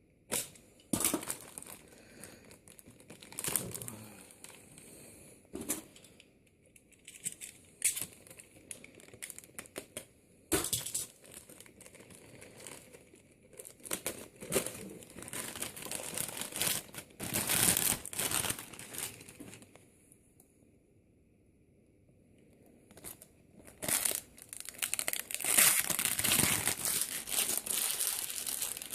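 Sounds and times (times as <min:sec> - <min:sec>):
packaging crinkling: 0:00.3 - 0:05.0, 0:06.9 - 0:10.1, 0:10.7 - 0:19.8, 0:22.9 - 0:28.9.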